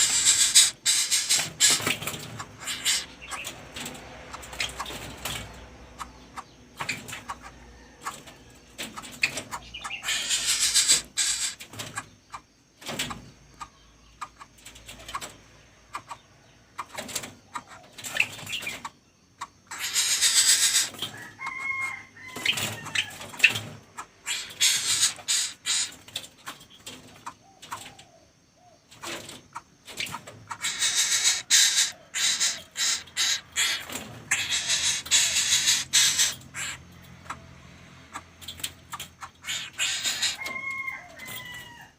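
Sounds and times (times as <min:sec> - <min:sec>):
birds giving harsh hissing rasps: 0:00.0 - 0:05.4, 0:09.0 - 0:14.5, 0:16.8 - 0:27.8, 0:28.9 - 0:37.4, 0:38.1 - 0:40.6.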